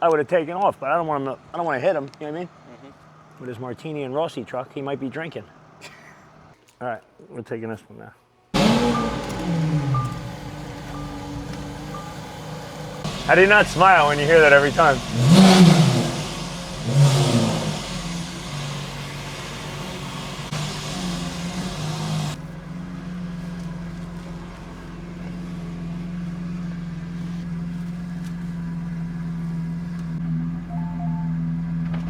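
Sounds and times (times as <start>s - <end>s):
car engine revving: 8.6s - 32.0s.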